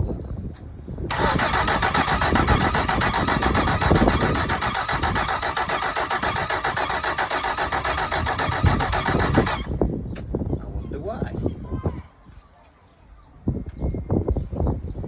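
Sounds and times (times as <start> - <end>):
outboard motor cranking: 1.1 - 9.8.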